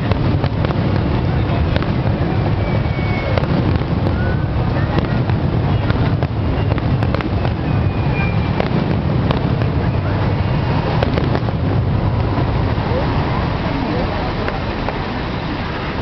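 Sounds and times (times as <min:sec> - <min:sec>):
fireworks whistles: 0:00.0 - 0:11.8
fireworks rumble and cracks: 0:00.0 - 0:16.0.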